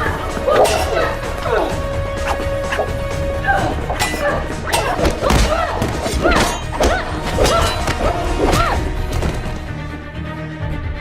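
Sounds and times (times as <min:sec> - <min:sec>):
action music score: 0:00.0 - 0:11.0
punches and body thuds: 0:04.8 - 0:09.6.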